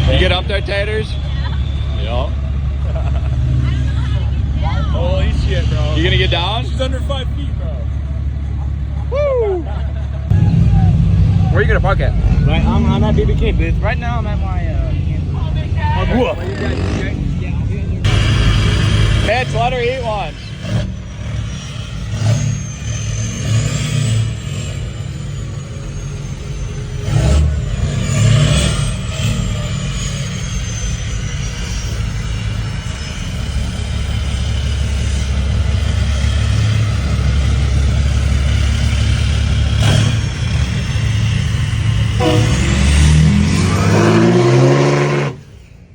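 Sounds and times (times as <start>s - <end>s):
steady low rumble: 0.0s - 23.3s
pickup truck engine revving: 0.0s - 45.9s
high whistle: 1.0s - 2.5s, 21.0s - 33.5s, 42.0s - 45.8s.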